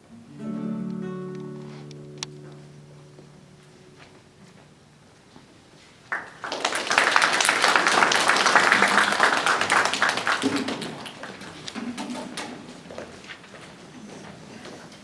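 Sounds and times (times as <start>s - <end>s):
audience applauding: 6.1s - 12.3s.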